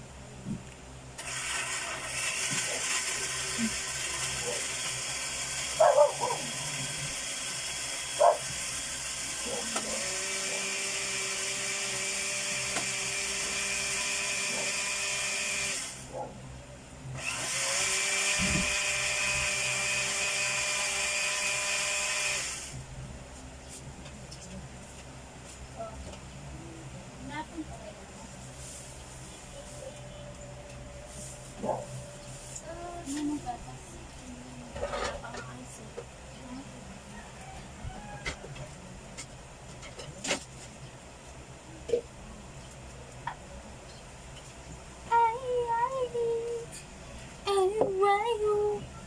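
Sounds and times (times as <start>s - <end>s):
electric blender running: 1.2s - 16.1s, 17.2s - 22.9s.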